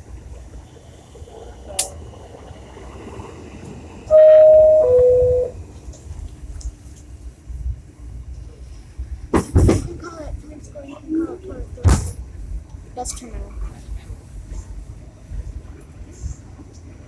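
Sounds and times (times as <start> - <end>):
low train rumble: 0.0 - 17.0
two-tone door chime: 4.1 - 5.6.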